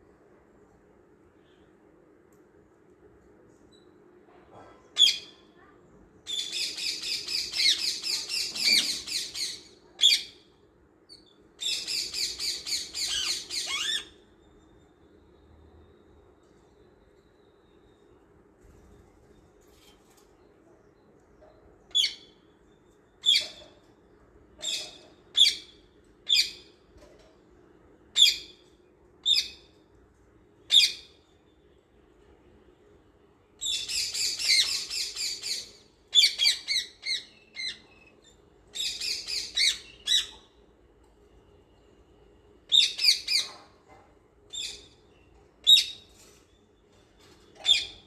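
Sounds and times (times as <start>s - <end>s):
small birds chirping and chattering: 5.0s - 10.4s, 11.1s - 14.8s, 33.6s - 40.6s, 42.7s - 43.8s, 44.5s - 48.0s.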